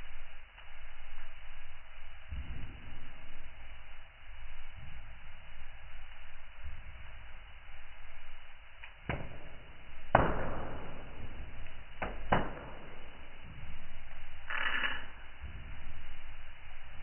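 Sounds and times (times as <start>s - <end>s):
steady hiss: 0.0s - 17.0s
wood fire crackling: 0.0s - 17.0s
sharp pops of fire: 8.7s - 16.3s.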